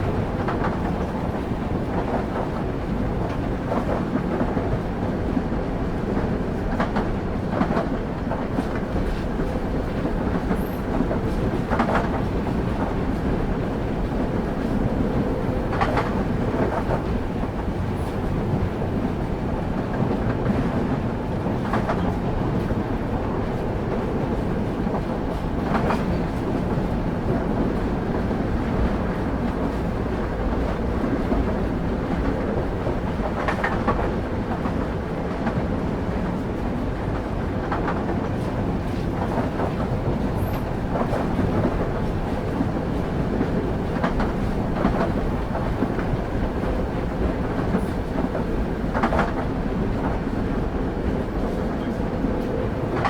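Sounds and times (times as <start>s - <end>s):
train wheels rumbling on rails: 0.0s - 53.0s.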